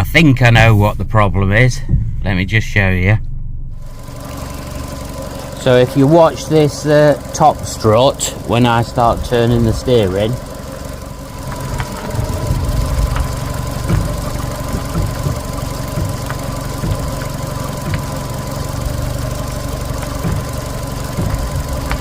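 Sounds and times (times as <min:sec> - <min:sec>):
car engine idling: 0:00.0 - 0:22.0
knocks and clicks from suspension: 0:11.4 - 0:22.0.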